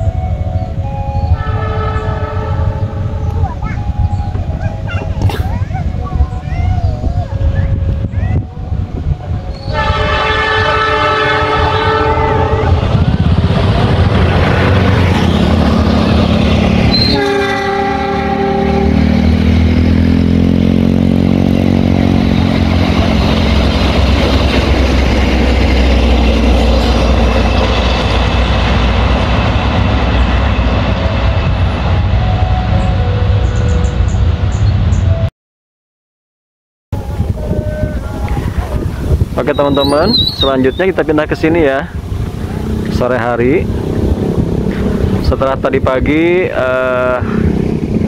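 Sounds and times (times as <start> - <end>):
locomotive drone falling in pitch: 0.0 - 35.3
train horn chord blasts: 1.2 - 3.4, 9.5 - 13.0, 16.5 - 19.9
train wheels rumbling and clattering: 11.3 - 17.7, 18.8 - 35.2, 37.0 - 48.0.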